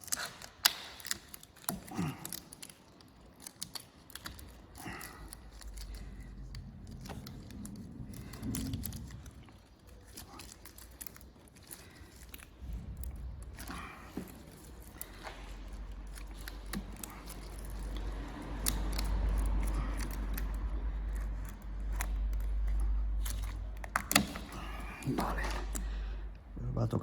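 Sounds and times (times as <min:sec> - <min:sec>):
rustling: 0:00.0 - 0:26.6
soft low rumble: 0:05.1 - 0:11.0, 0:12.0 - 0:24.0.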